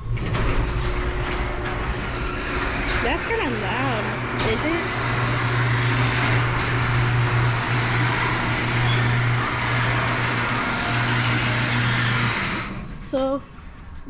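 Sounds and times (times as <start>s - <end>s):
garage door rattling: 0.0s - 13.2s
garage door opener motor hum: 0.0s - 14.0s.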